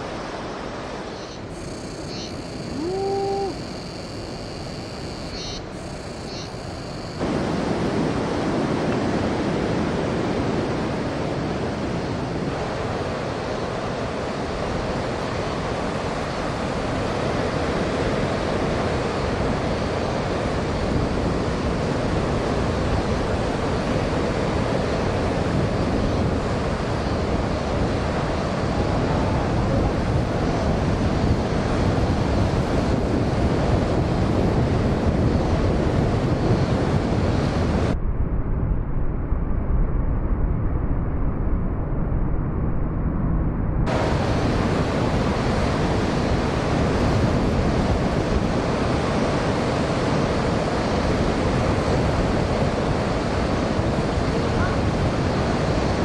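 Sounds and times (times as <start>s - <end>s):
heavy surf waves breaking: 0.0s - 38.0s, 43.9s - 56.0s
wind buffeting microphone: 0.0s - 56.0s.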